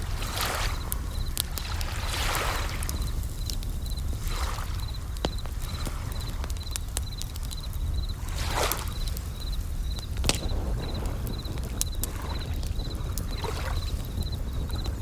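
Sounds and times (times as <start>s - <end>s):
waves washing in: 0.0s - 6.6s
campfire crackling and popping: 0.0s - 15.0s
cricket ringing chirp: 0.0s - 15.0s.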